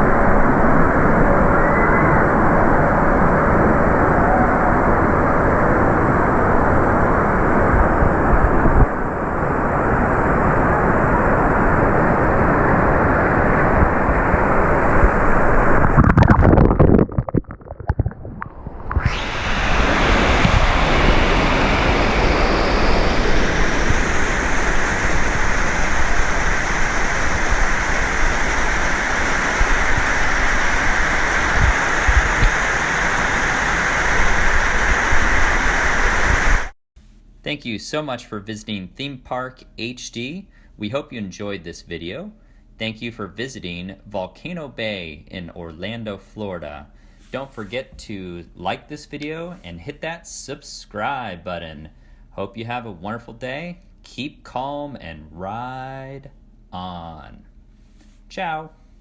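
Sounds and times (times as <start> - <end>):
water cascading down waterfall: 19.0 - 36.7.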